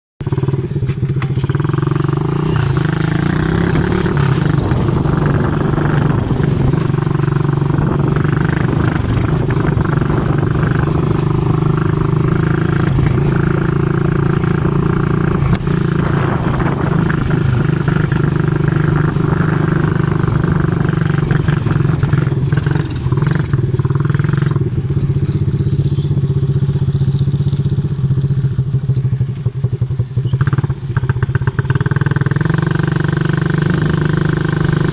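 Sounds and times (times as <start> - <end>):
atv engine running: 0.2 - 34.9.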